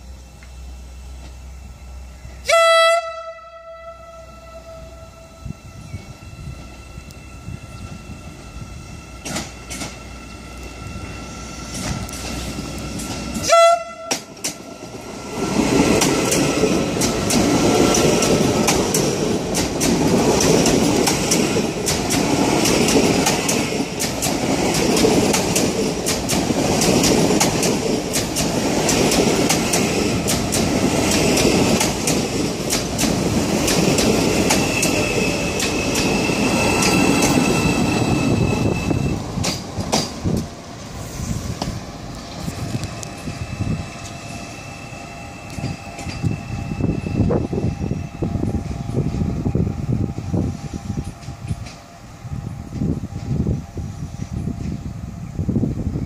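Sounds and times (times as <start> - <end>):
train rumbling past: 0.0 - 56.0
train horn toot: 2.2 - 6.2, 13.4 - 14.4
wheels clicking over rail joints: 9.2 - 10.9, 11.7 - 37.8, 39.2 - 41.0.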